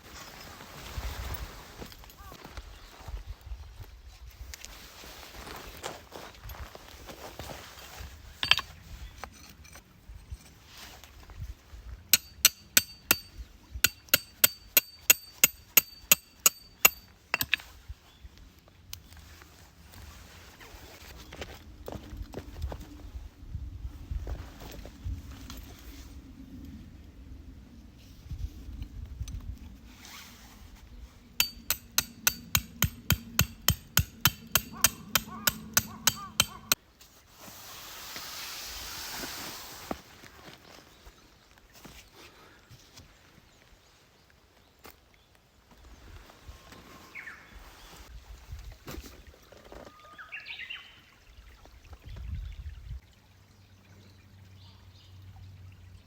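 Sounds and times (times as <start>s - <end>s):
hammer striking metal tent peg: 12.2s - 17.6s, 31.4s - 36.8s.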